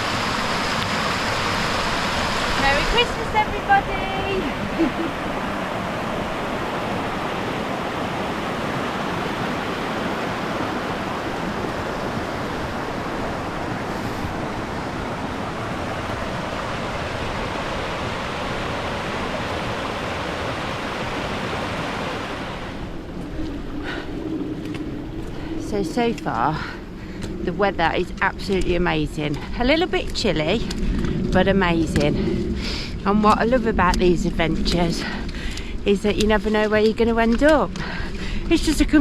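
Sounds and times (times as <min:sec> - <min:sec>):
running water rushing: 0:00.0 - 0:26.1.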